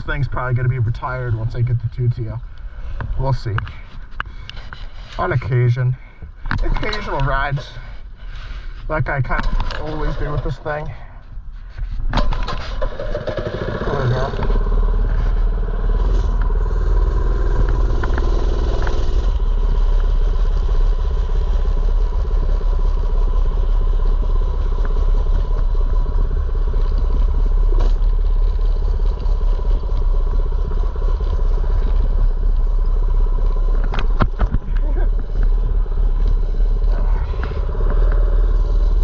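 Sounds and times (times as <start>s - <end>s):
small engine running: 12.4s - 39.0s.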